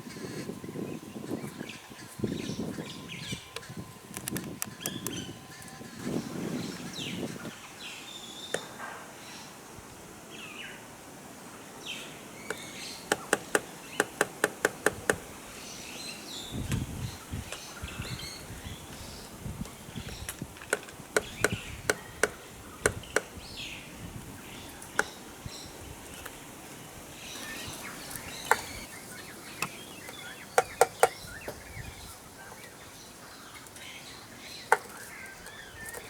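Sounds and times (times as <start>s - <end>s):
woodpecker knocking on car: 8.5s - 8.8s, 12.5s - 15.3s, 20.6s - 23.5s, 28.4s - 28.8s, 29.6s - 31.6s.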